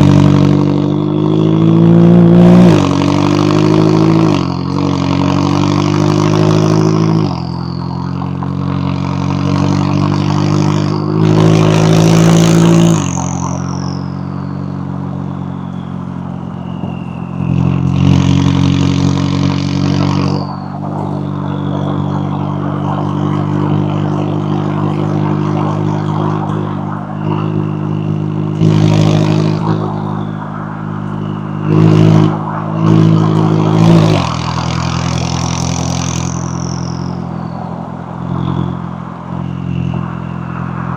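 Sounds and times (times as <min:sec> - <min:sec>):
car exhaust revving: 0:00.0 - 0:40.9
high whistle sliding down: 0:10.7 - 0:40.9.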